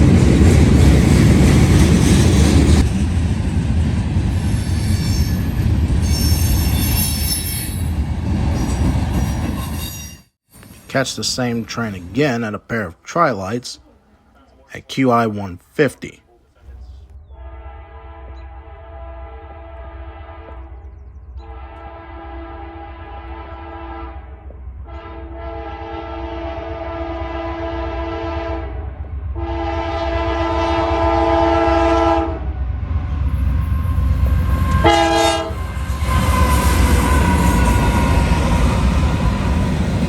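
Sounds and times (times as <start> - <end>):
train passing with rail noise: 0.0 - 16.0, 16.6 - 40.0
locomotive air horn blasts: 17.3 - 20.8, 21.4 - 24.3, 24.9 - 28.8, 29.4 - 32.4, 34.7 - 38.1.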